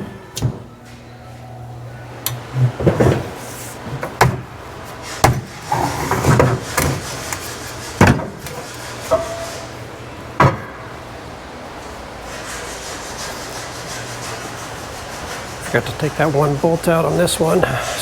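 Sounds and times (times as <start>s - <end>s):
steady low hum: 0.0s - 18.0s
metal clanks and knocks: 2.6s - 9.8s.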